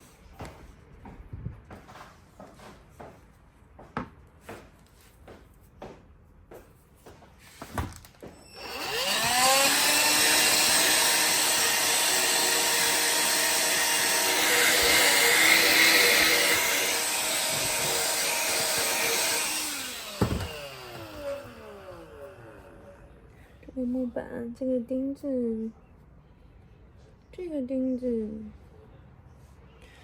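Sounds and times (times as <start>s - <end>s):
electric sander on wood: 8.4s - 23.1s.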